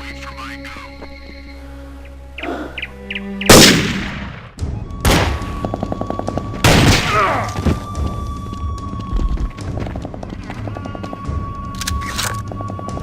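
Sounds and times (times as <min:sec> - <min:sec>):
background music: 0:00.0 - 0:13.0
echoing gunshots: 0:03.5 - 0:05.6, 0:06.6 - 0:07.4.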